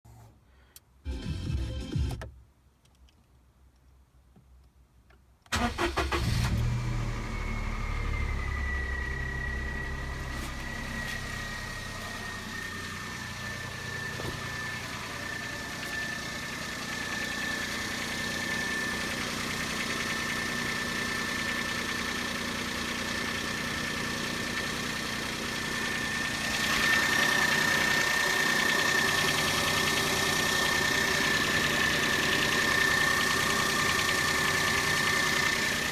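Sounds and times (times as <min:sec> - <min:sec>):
car engine starting and idling: 0:05.5 - 0:35.9
steady high whine: 0:07.0 - 0:22.3, 0:24.5 - 0:35.9
engine rattle: 0:07.8 - 0:35.9.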